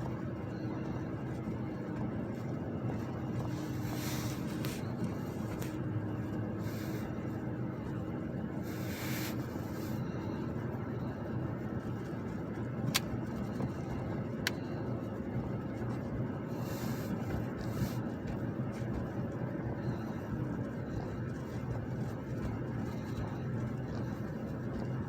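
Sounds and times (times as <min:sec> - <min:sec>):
car low rumble: 0:00.0 - 0:25.0.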